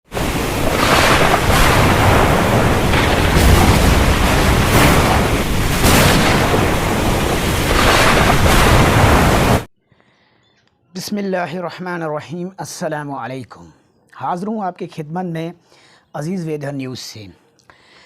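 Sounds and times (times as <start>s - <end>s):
rain rushing: 0.1s - 9.7s
wind gusting: 0.1s - 9.7s.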